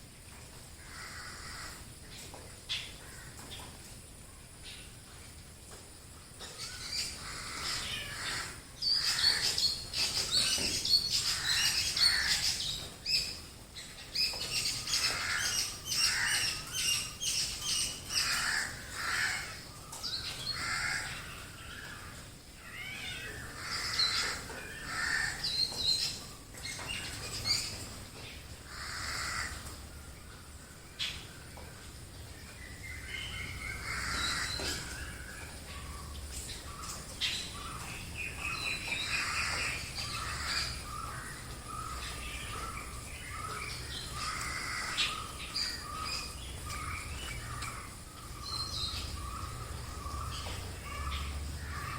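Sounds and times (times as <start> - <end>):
wild birds calling: 0.6 - 5.1, 5.9 - 51.9
crows cawing: 0.8 - 1.9, 3.0 - 3.5, 6.6 - 9.7, 11.2 - 12.6, 14.9 - 17.1, 18.0 - 25.8, 28.6 - 30.8, 33.3 - 36.1, 38.9 - 48.5, 49.2 - 51.9.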